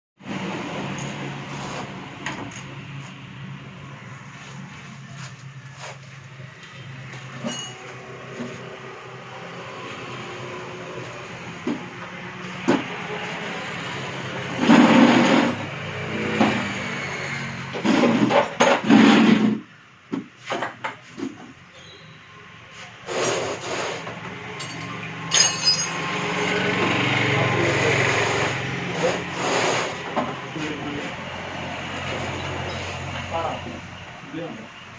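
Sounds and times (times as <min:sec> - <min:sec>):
hard objects knocking and clattering: 0:24.6 - 0:26.2.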